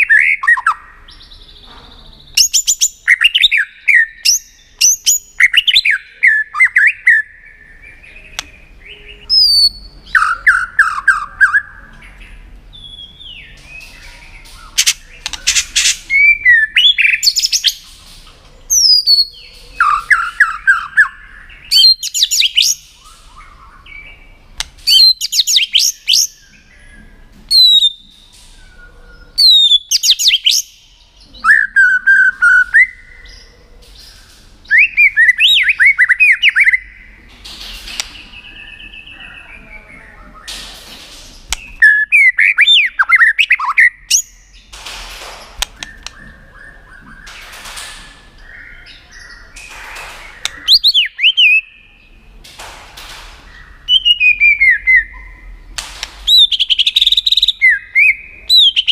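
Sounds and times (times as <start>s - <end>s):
bird clicking calls: 13.8s - 19.2s, 45.6s - 47.9s, 48.8s - 51.6s
bird whistled notes: 27.5s - 30.7s.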